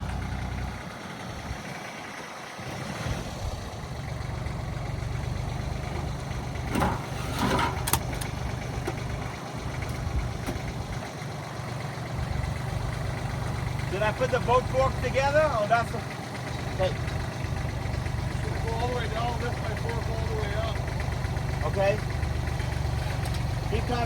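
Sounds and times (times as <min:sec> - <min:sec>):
engine idling: 0:00.0 - 0:24.0
gliding squeak: 0:06.7 - 0:08.0.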